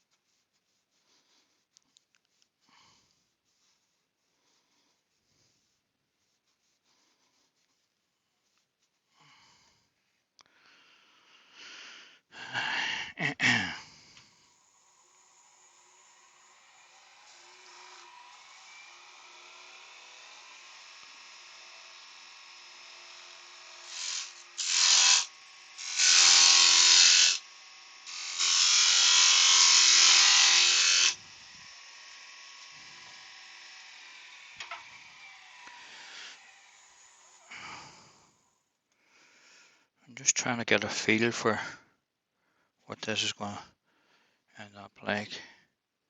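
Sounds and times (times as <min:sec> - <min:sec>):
tool rasping on wood: 0:14.5 - 0:31.2
wood lathe humming: 0:14.5 - 0:37.5.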